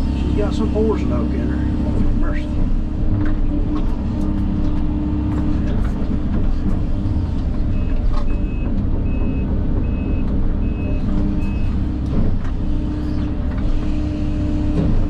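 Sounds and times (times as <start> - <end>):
diesel engine under load: 0.0 - 15.0
backup alarm beeps: 7.8 - 11.8.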